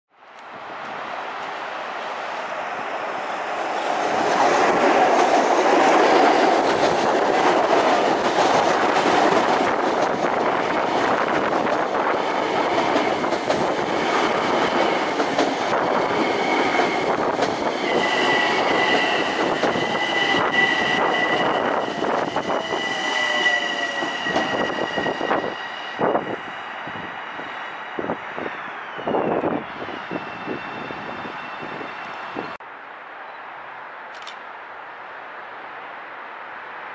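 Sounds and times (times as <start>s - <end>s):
train passing at speed: 0.2s - 32.6s
sharp clicks: 34.1s - 34.4s.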